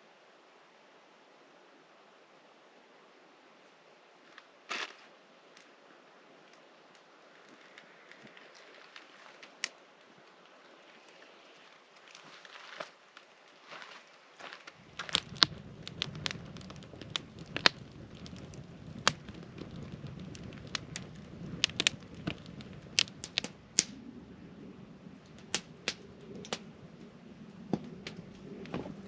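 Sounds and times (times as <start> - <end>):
campfire crackling and popping: 6.4 - 29.0
flames rushing: 6.5 - 12.5, 14.7 - 29.0.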